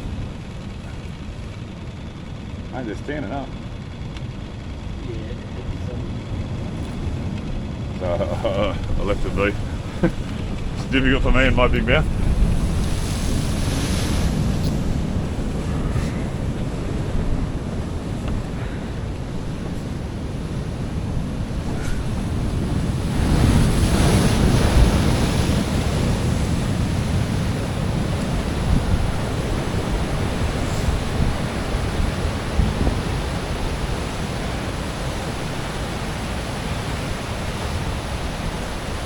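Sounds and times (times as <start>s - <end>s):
wind buffeting microphone: 6.0s - 39.0s
surf breaking against rocks: 8.3s - 39.0s.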